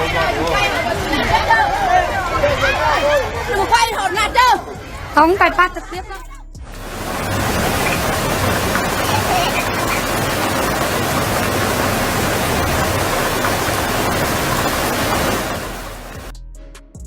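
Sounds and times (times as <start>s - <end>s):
loud rushing roar: 6.7s - 16.3s.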